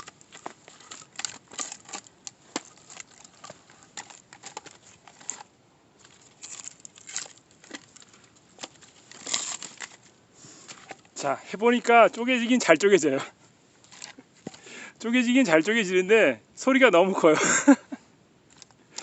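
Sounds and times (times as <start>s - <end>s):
wood pieces knocking and clicking: 0.0s - 10.1s.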